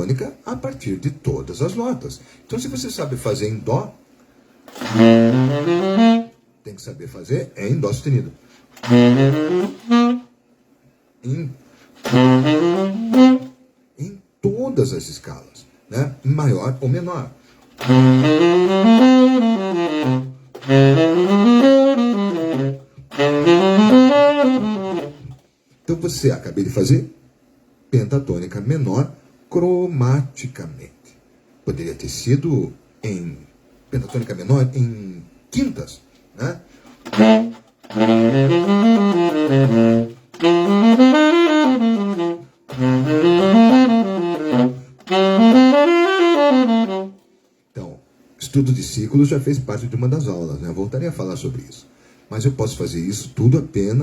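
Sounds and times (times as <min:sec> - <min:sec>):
saxophone playing scale runs: 0:04.7 - 0:06.4, 0:08.8 - 0:10.3, 0:12.0 - 0:13.6, 0:17.8 - 0:25.4, 0:37.0 - 0:47.2.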